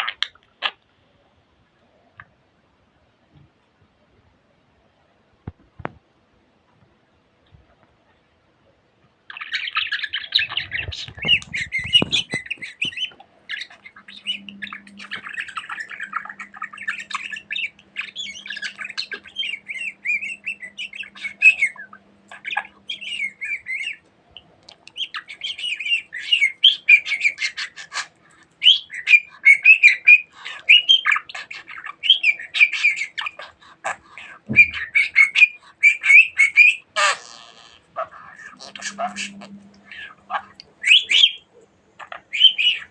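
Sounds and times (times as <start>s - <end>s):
budgerigar chattering and warbling: 9.3s - 24.0s, 24.8s - 42.9s.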